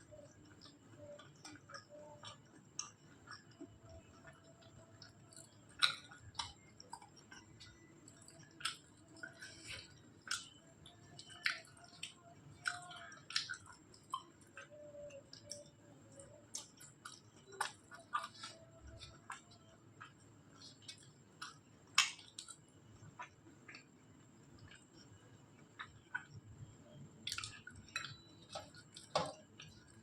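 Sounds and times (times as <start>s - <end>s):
chewing soft food: 0.0s - 30.0s
wet mouth clicks and lip smacks: 0.1s - 22.6s.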